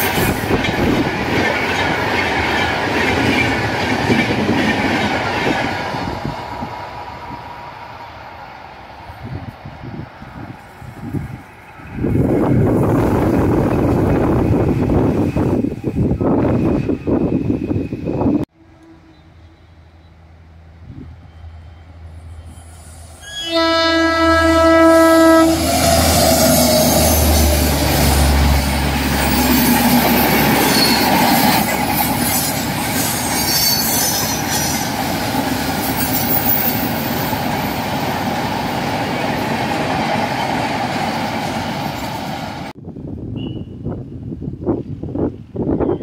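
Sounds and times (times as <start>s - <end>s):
train wheels clattering: 0.0s - 6.1s
train horn blast: 18.5s - 20.2s, 21.2s - 28.6s.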